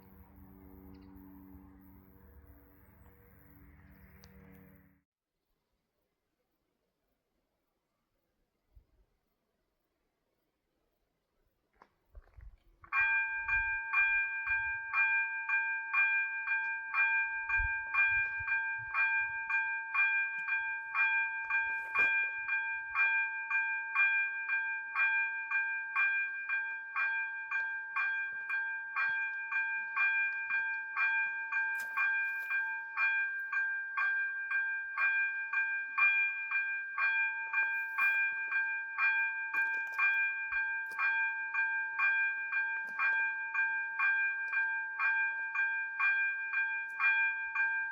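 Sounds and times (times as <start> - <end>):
level crossing bells ringing: 12.9 - 47.9.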